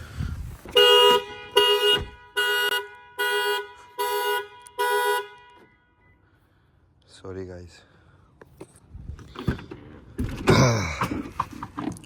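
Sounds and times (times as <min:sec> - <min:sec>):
car alarm horn blasts: 0:00.7 - 0:06.2.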